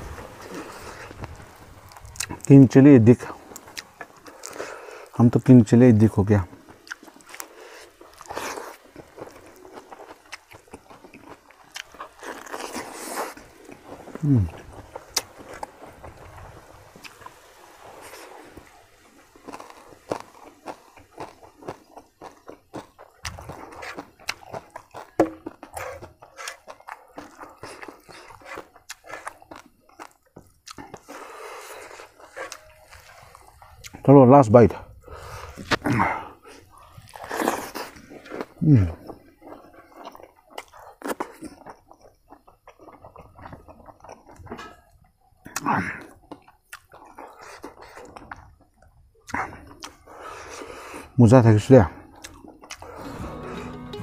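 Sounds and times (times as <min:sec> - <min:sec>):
person chewing food: 0:00.0 - 0:02.5, 0:03.3 - 0:05.2, 0:06.4 - 0:34.0, 0:35.0 - 0:51.2, 0:52.0 - 0:54.0
wet mouth smacking: 0:52.2 - 0:52.9.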